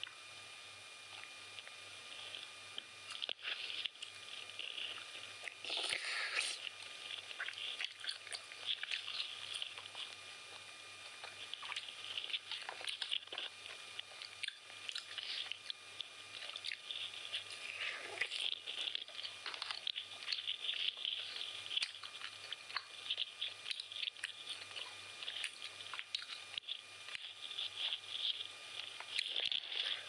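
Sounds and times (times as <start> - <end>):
faint low hum: 0.0 - 30.0
person chewing food: 1.1 - 30.0.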